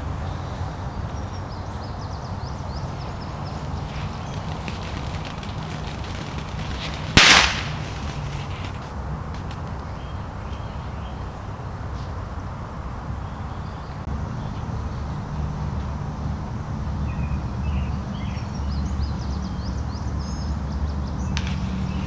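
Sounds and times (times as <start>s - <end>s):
steady low rumble: 0.0s - 19.7s
hiss after firework: 2.9s - 9.9s, 21.3s - 22.0s
firework bang: 3.5s - 9.8s.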